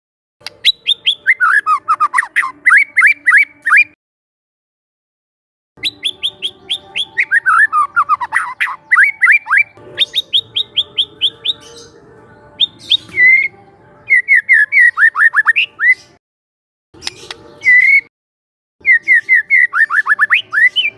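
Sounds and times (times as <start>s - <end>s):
bird singing whistled notes: 0.5s - 4.0s, 5.8s - 12.0s, 12.6s - 16.2s, 17.0s - 18.1s, 18.8s - 20.9s.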